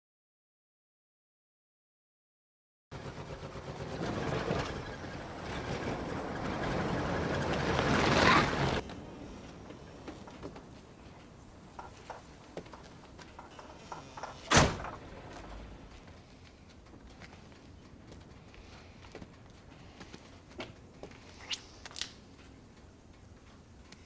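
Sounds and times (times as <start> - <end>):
motor vehicle approaching: 2.9 - 23.9
background hiss: 8.8 - 24.0
faint clicks: 8.8 - 24.0.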